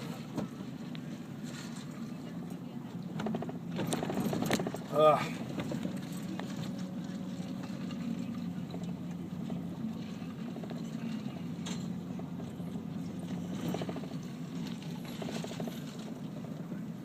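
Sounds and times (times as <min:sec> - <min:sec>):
car engine and tyres running: 0:00.0 - 0:17.0.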